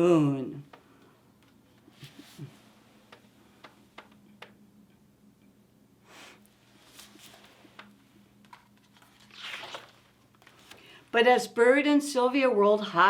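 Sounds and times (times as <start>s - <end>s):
low steady hum: 0.0s - 13.0s
soft rustle: 1.8s - 3.1s, 6.5s - 8.0s.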